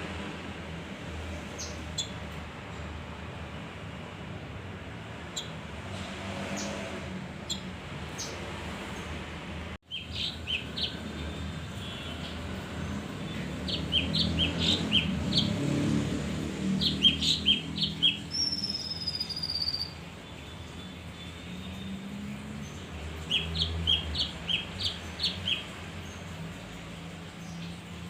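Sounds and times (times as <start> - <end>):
songbird chirping and whistling: 16.8 - 20.0.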